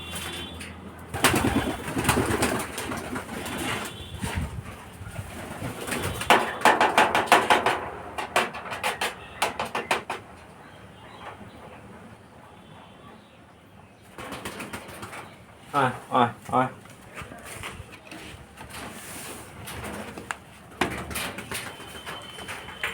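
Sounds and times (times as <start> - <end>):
pigeons cooing: 1.1 - 3.9
loud sharp claps: 6.2 - 10.2.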